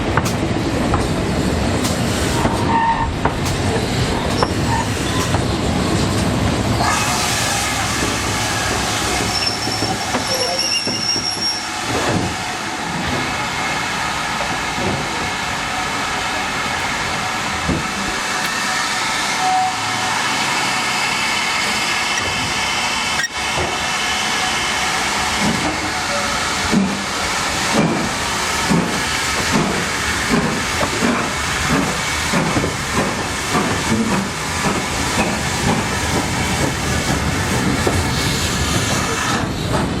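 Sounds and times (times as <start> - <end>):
rail clacks: 0.0 - 19.0, 21.3 - 40.0
train wheels rumbling on rails: 0.0 - 40.0.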